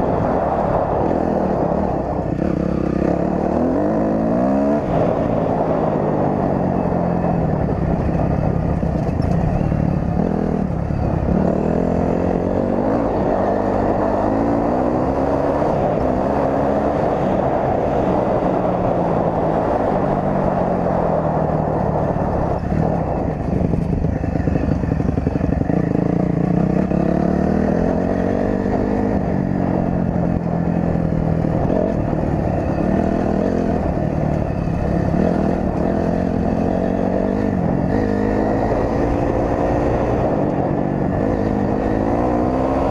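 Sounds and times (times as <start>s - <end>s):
dirt bike engine revving: 21.9s - 30.5s.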